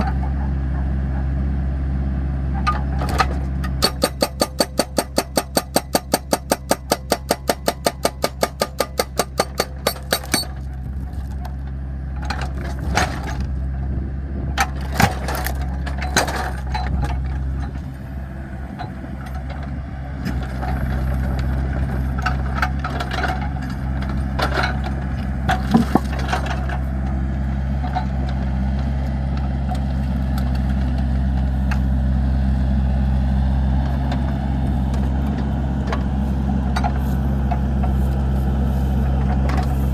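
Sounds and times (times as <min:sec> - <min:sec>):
excavator diesel engine running: 0:00.0 - 0:39.9
wood cracking and knocking: 0:25.5 - 0:26.5.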